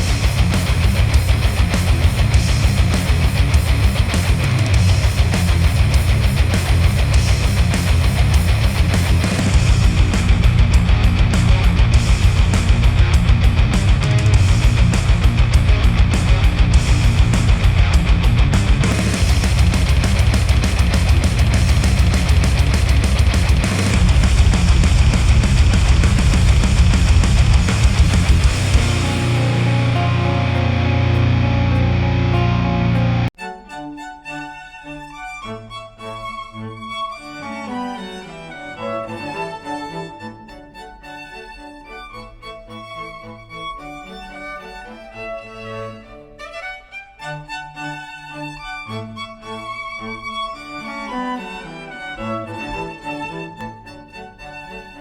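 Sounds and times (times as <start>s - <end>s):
heavy rock music: 0.0s - 33.3s.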